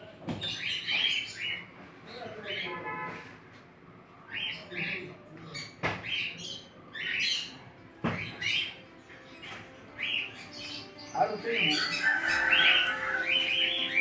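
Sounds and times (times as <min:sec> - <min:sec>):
birds squawking: 0:04.3 - 0:14.0.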